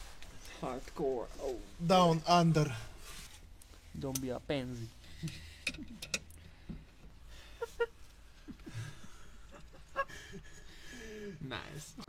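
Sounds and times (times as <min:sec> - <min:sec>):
metal tools clicking on brake parts: 0:05.3 - 0:06.4.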